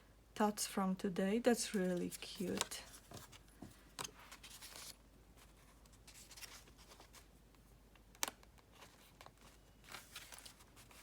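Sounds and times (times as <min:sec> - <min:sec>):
paper pages rustling: 0:01.6 - 0:07.3, 0:08.7 - 0:11.0.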